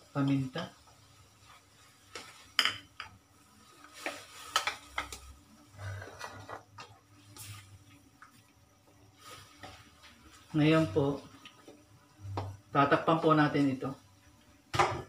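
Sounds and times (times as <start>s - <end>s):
spatula scraping a wok: 3.7s - 6.6s.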